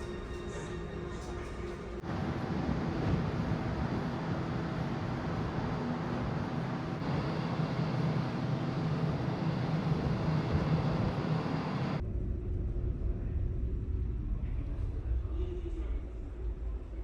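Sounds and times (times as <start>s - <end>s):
deep low ship rumble: 0.0s - 17.0s
ship engine hum: 0.1s - 12.0s.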